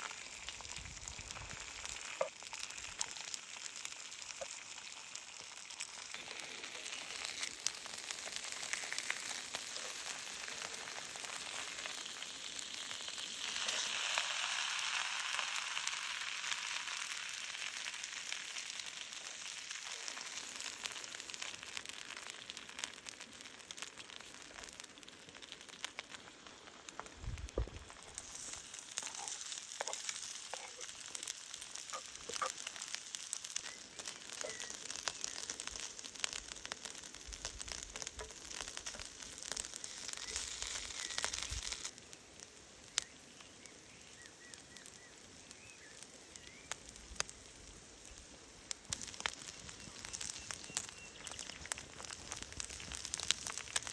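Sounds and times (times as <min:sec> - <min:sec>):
food sizzling over fire: 0:00.0 - 0:53.9
low thump: 0:27.2 - 0:27.8.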